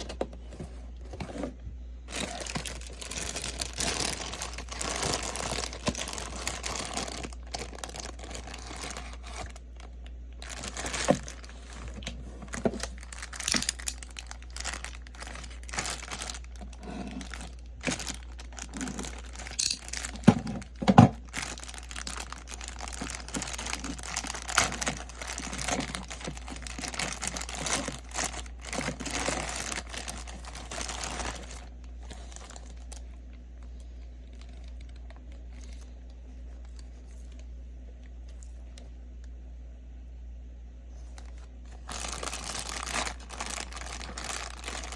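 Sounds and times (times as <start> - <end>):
packaging crinkling and rustling: 0.0 - 38.8, 41.0 - 44.9
packaging tearing: 2.1 - 33.0, 41.8 - 44.9.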